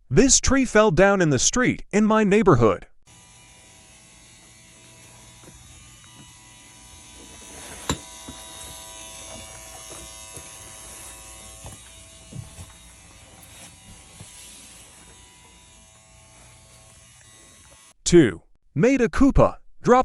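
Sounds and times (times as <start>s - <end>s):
electric buzz: 3.1s - 18.0s.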